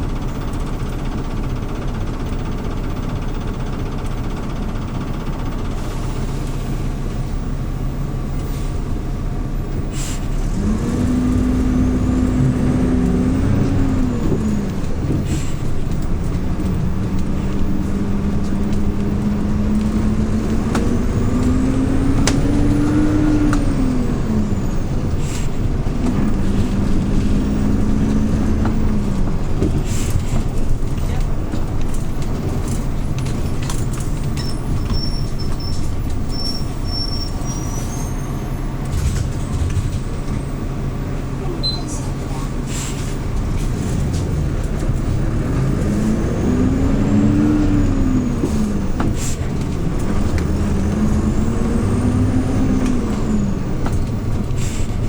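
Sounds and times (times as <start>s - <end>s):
bus engine running: 0.0s - 55.0s
sharp clicks and rattles: 10.6s - 36.8s.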